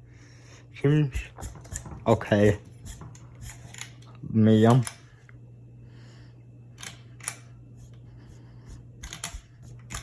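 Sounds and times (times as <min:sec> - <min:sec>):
ceiling fan motor hum: 0:00.0 - 0:10.0
light mechanical clicks: 0:06.8 - 0:07.5.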